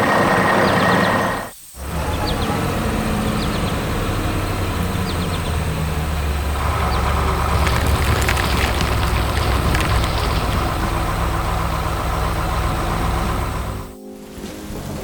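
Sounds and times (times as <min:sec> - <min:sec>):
heavy vehicle engine idling: 0:10.8 - 0:13.9.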